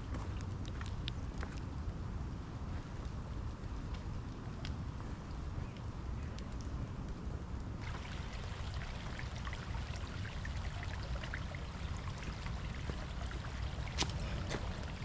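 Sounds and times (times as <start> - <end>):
raindrop ticks: 0.1 - 15.0
rain falling: 7.8 - 15.0.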